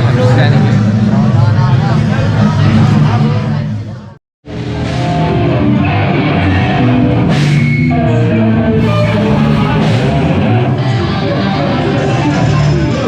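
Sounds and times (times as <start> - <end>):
loud rock music: 4.5 - 13.0
cymbal crashes: 8.8 - 11.2.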